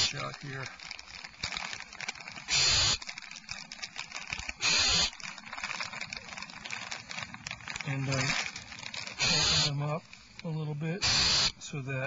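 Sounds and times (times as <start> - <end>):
owl nestlings hissing: 0.0 - 0.3, 2.3 - 3.4, 4.4 - 5.9, 7.3 - 11.8
small clicks and rustles: 0.0 - 9.2.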